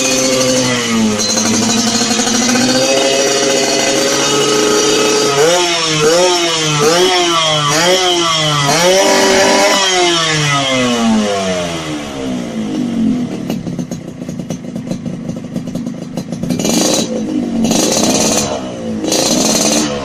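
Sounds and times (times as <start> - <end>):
two-stroke engine idling and revving: 0.0 - 20.0.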